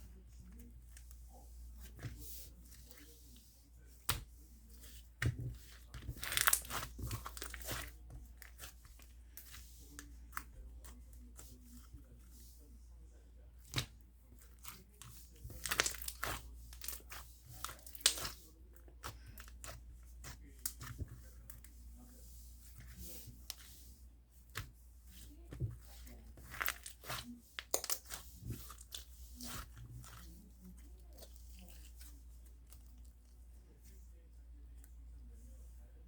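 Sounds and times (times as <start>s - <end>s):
slime crackling and popping: 6.1s - 7.9s, 15.6s - 17.1s, 26.4s - 29.7s.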